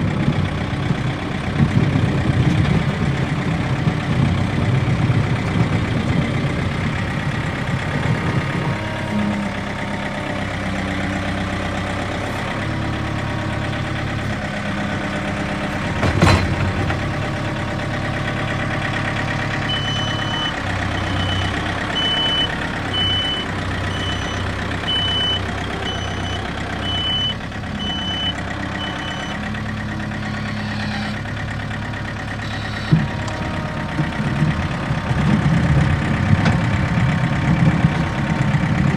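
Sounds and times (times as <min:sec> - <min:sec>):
diesel engine under load: 0:00.0 - 0:38.9
reverse alarm beeping: 0:19.7 - 0:29.4.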